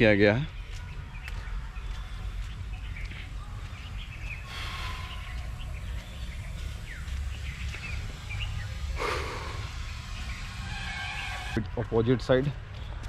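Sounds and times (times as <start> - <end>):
birds chirping: 0.0 - 13.0
low rumble: 2.4 - 11.7.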